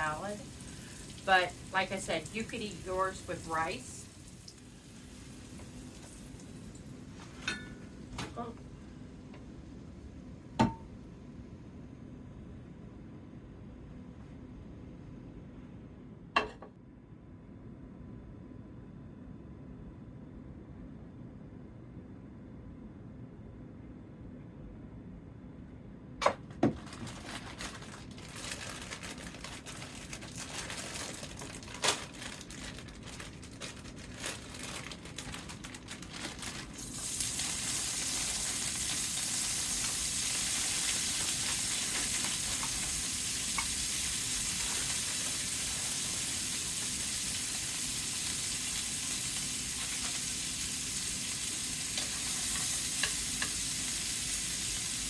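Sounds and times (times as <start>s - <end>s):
vegetables sizzling in hot oil: 0.0s - 6.9s, 36.6s - 55.0s
oil crackling in a skillet: 0.0s - 7.5s, 34.3s - 55.0s.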